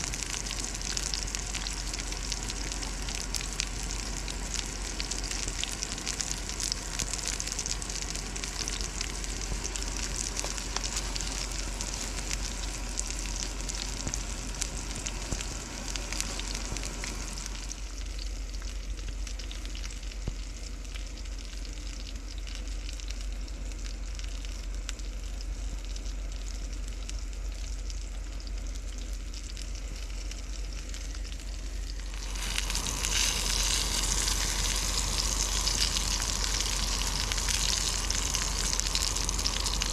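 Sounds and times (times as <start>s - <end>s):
food sizzling over campfire: 0.0s - 39.9s.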